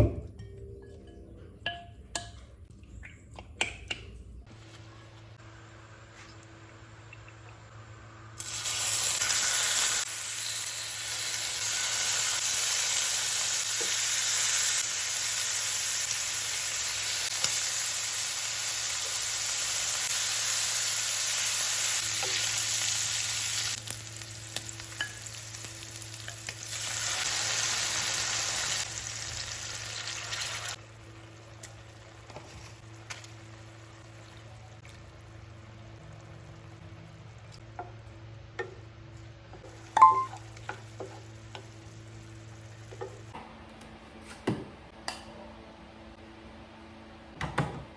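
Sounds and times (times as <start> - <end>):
food sizzling in a pan: 8.4 - 34.8.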